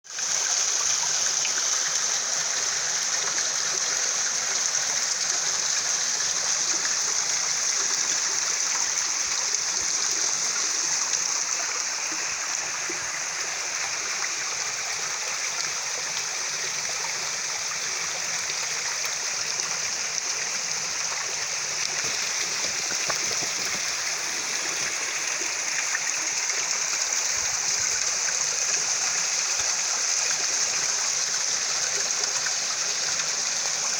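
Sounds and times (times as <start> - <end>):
waterfall rushing: 16.6 - 31.2.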